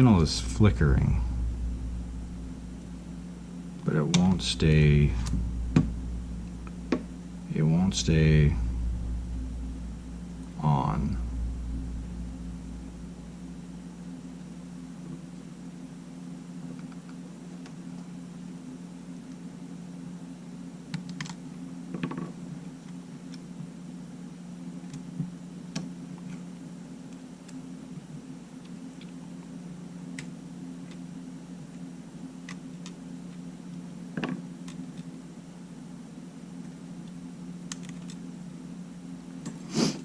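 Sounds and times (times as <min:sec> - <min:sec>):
steady low hum: 0:00.0 - 0:40.0
small parts clicking and tapping: 0:34.2 - 0:35.1, 0:37.0 - 0:38.2.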